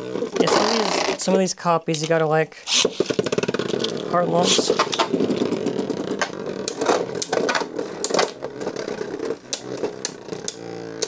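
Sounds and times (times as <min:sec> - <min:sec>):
spinning tops whirring: 0:02.6 - 0:11.0.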